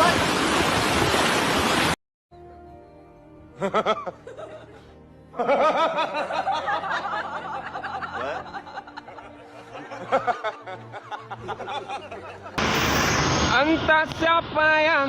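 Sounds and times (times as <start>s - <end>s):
people laughing: 3.6s - 12.6s.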